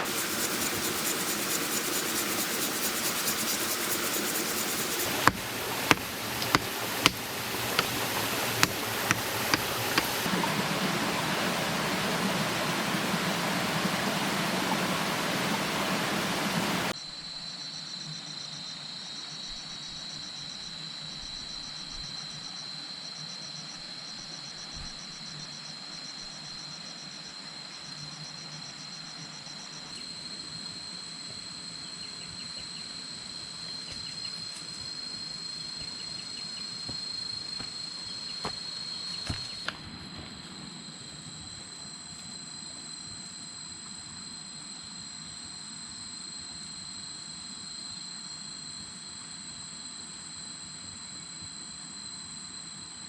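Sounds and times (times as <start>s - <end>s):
insects buzzing drone: 0.0s - 10.3s, 25.2s - 53.0s
sharp clicks: 5.1s - 10.3s.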